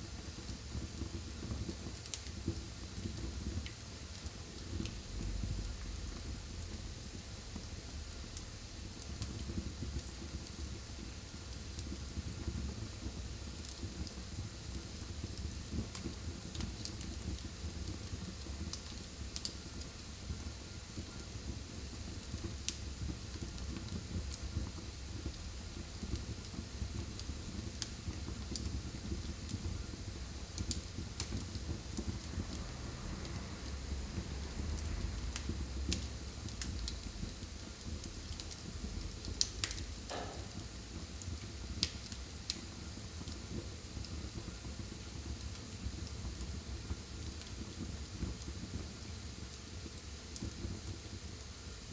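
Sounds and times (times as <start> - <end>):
fire crackles and pops: 0.0 - 51.9
wood fire rumble and hiss: 0.0 - 51.9.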